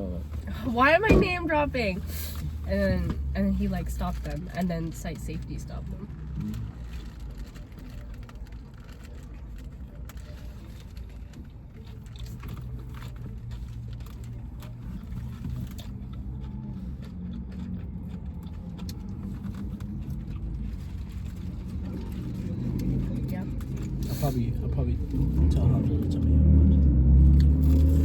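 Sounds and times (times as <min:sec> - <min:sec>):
wrappers rustling: 0:02.0 - 0:16.4
chewing food: 0:06.1 - 0:28.0.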